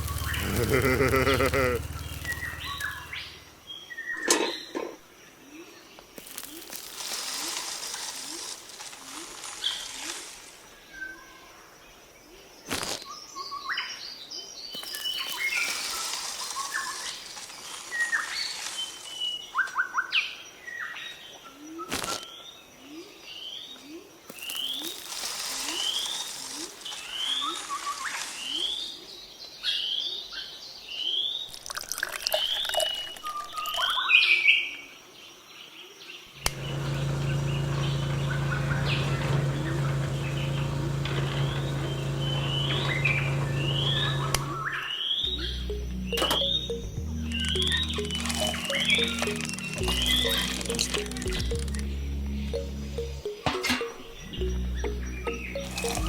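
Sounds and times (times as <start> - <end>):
hiss: 0.0 - 3.5, 6.2 - 10.7, 14.8 - 19.3, 24.3 - 29.0
birds chirping and calling: 45.3 - 56.0
sharp clicks: 45.8 - 51.9.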